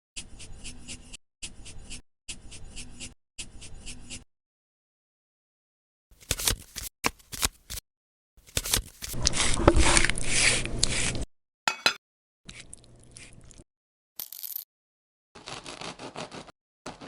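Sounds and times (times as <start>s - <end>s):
quick clicks and scrapes: 8.4s - 11.2s, 15.4s - 17.0s.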